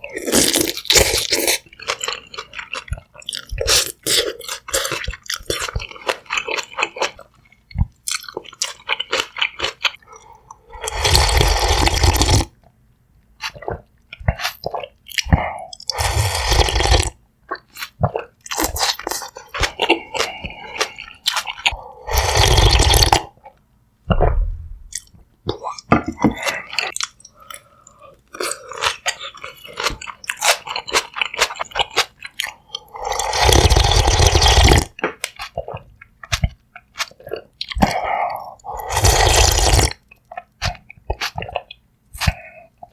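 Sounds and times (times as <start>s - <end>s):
chewing and crunching food: 0.0s - 12.8s, 13.4s - 23.6s, 24.9s - 42.9s.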